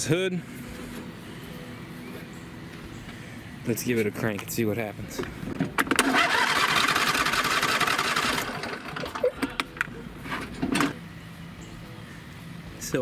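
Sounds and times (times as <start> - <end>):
electric starter cranking engine: 5.8 - 9.7, 10.4 - 11.0.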